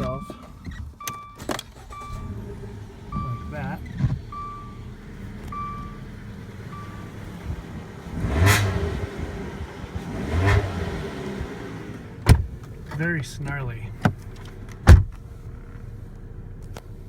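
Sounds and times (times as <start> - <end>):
beeping chime: 0.0 - 2.4, 3.1 - 4.8, 5.5 - 6.0, 6.7 - 7.1
car engine idling and revving: 0.0 - 17.0.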